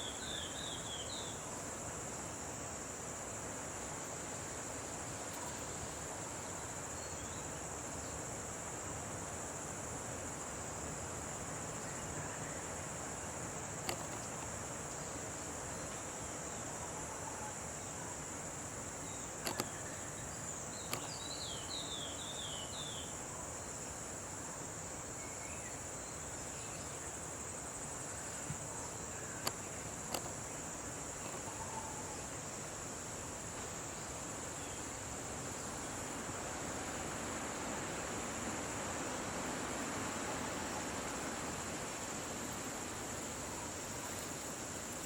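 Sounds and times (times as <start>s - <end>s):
background hiss: 0.0s - 45.0s
insects droning: 0.0s - 45.0s
sharp clicks: 19.4s - 19.7s.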